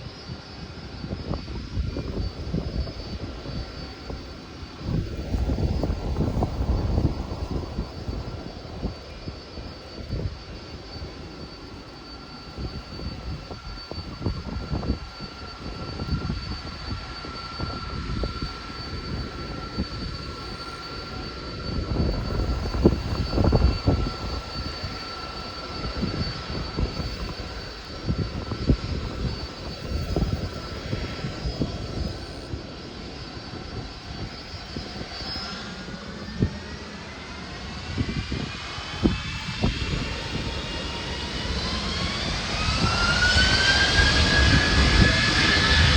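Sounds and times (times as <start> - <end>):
jet engines whining: 0.0 - 45.9
whine rising in pitch: 0.6 - 45.9.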